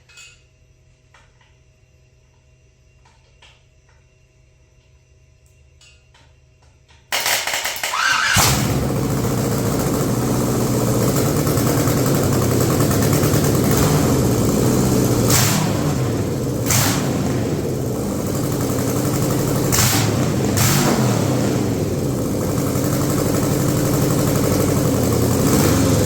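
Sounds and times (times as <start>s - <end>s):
engine revving bursts: 7.2s - 26.0s
engine starter cranking: 7.2s - 26.0s
car engine running: 7.9s - 26.0s.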